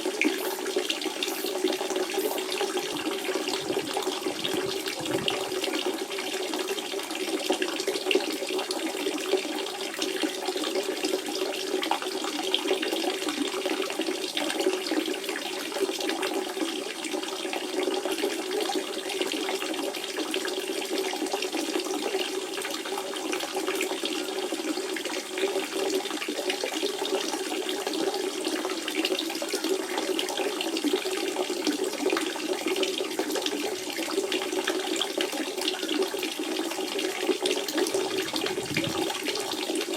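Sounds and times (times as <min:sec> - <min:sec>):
spring water running: 0:00.0 - 0:06.8, 0:37.5 - 0:39.9.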